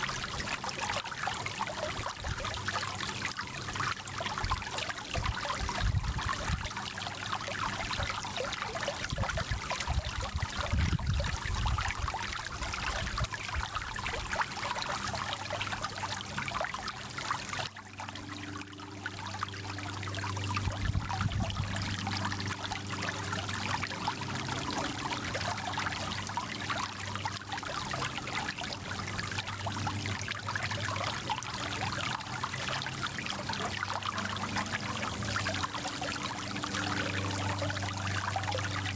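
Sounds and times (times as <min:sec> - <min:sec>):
mountain stream flowing: 0:00.0 - 0:38.9.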